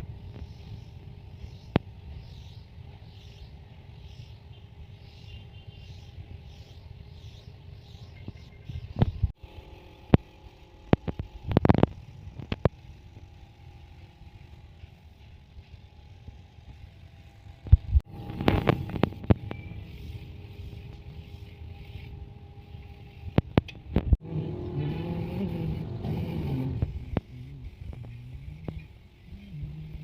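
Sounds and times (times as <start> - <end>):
low steady rumble: 8.7 - 30.0.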